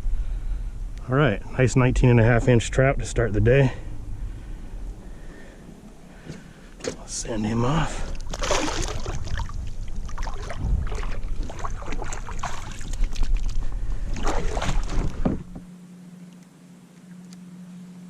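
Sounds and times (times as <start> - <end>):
faint steady hum: 0.0 - 18.0
water splashing and sloshing: 4.2 - 16.4
wind on microphone: 8.1 - 15.7
knocks on kayak side: 14.6 - 15.7.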